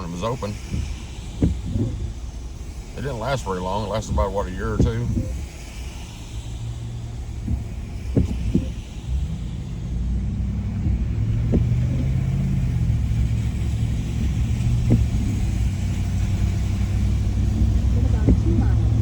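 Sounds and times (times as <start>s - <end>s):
car engine and road rumble: 0.0s - 19.0s
short knocks: 0.7s - 2.1s, 7.4s - 8.8s, 10.8s - 19.0s.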